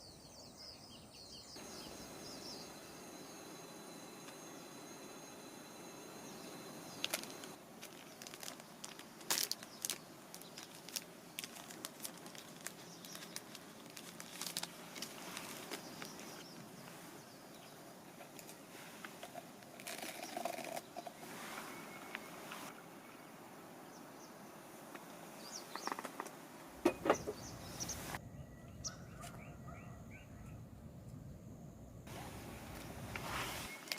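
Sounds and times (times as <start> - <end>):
faint outdoor background: 0.0 - 33.9
clicks and crinkling handling noises: 7.0 - 16.7, 18.1 - 21.2, 32.7 - 33.9.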